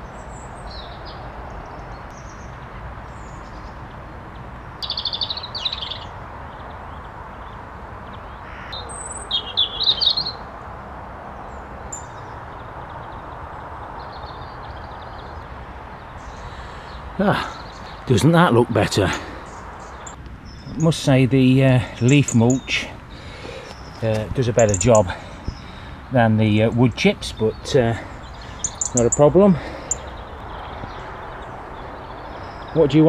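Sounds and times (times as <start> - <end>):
faint bird chirps: 4.8 - 6.1, 8.3 - 10.4, 22.0 - 25.9, 27.5 - 32.9
songbird singing high notes: 4.8 - 6.1, 8.5 - 10.4, 16.2 - 23.0, 23.7 - 25.7, 26.7 - 33.0.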